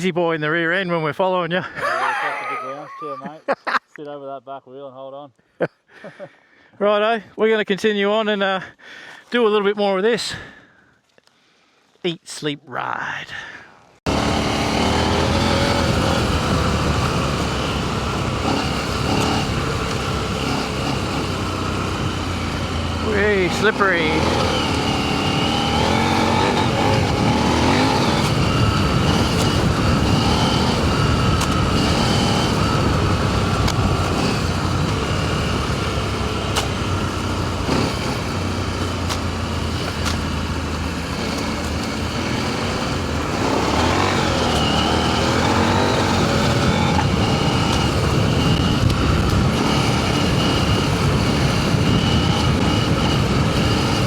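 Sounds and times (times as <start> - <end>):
motorcycle engine running: 14.1 - 54.0
wind noise: 24.2 - 36.5, 42.0 - 54.0.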